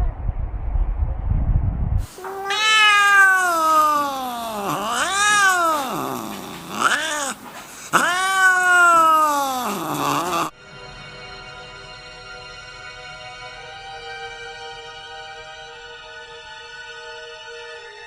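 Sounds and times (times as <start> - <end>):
low rumbling noise: 0.0 - 2.0
cat yowling: 2.0 - 10.5.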